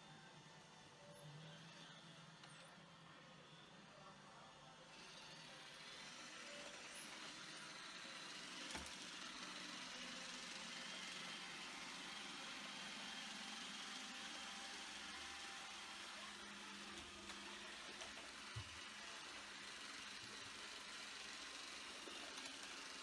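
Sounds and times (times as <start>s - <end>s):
robot vacuum humming: 4.9s - 23.0s.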